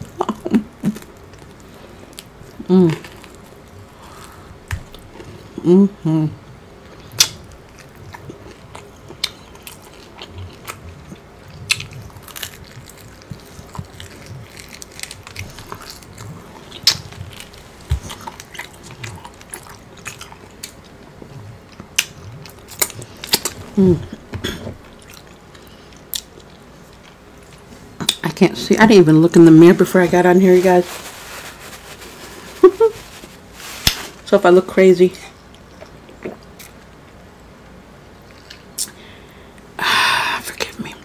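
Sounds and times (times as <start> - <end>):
chewing and lip smacking: 6.9 - 23.8, 24.6 - 28.3, 35.4 - 37.2, 38.2 - 39.0.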